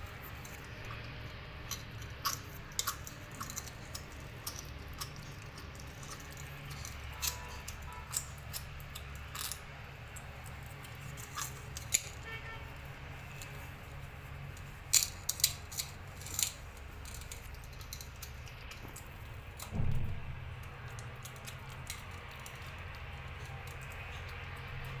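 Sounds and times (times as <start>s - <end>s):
kitten food and dish clicks: 0.0s - 25.0s
dull thump: 19.7s - 20.5s.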